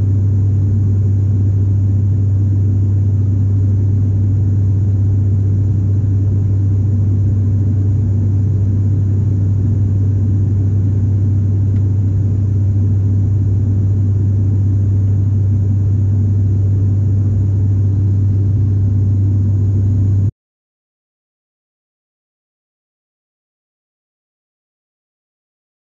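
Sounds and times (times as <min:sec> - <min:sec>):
airliner engines droning in cabin: 0:00.0 - 0:20.3.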